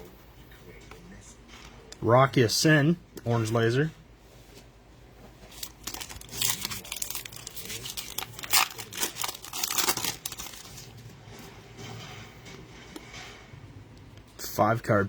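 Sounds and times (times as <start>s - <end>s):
plastic wrapper crinkling and tearing: 5.5s - 10.9s.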